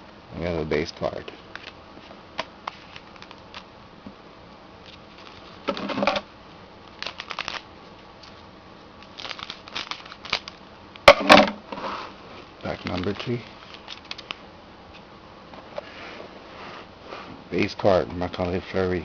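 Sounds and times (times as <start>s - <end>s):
cards being handled: 1.4s - 3.7s, 4.8s - 6.2s, 6.9s - 10.6s, 12.6s - 15.1s
wrapper crinkling: 2.7s - 3.7s, 4.8s - 6.1s, 6.8s - 8.4s, 9.0s - 10.7s, 12.6s - 14.4s.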